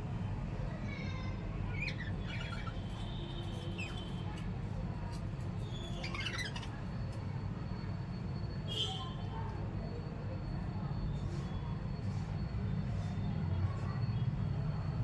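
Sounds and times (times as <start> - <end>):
parrots squawking and chirping: 1.7 - 3.0, 6.0 - 6.7.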